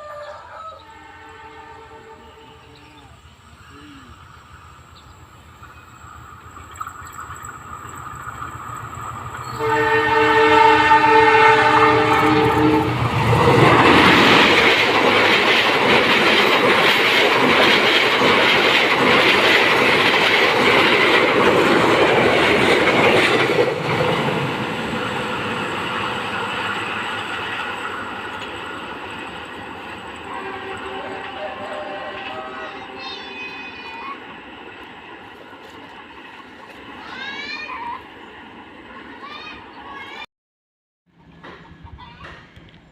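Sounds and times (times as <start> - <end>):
train horn: 0.0 - 3.0, 9.5 - 13.1, 30.2 - 33.9
train rushing and wheel noise: 0.0 - 40.3, 41.1 - 42.9.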